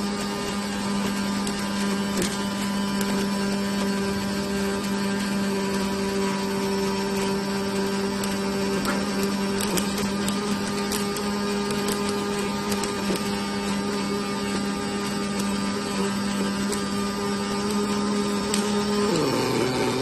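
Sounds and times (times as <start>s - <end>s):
electrical hum: 7.9s - 20.0s.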